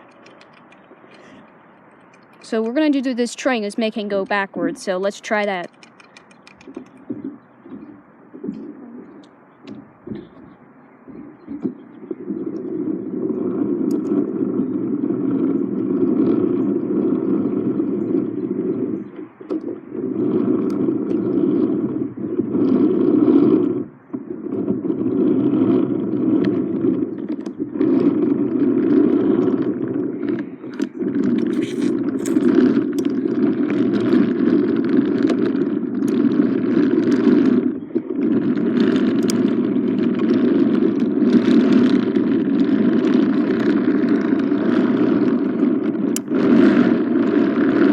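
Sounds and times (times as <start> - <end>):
toy train electric motor: 30.8 - 33.1.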